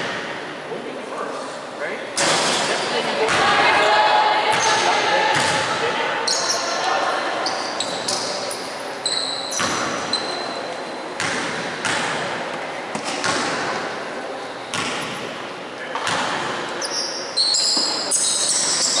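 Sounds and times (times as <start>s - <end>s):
basketball bouncing on court: 4.5s - 5.8s, 9.5s - 10.3s, 11.2s - 12.3s, 12.9s - 13.8s, 14.7s - 15.3s, 16.0s - 16.6s
shoes squeaking: 7.4s - 11.0s, 16.8s - 19.0s.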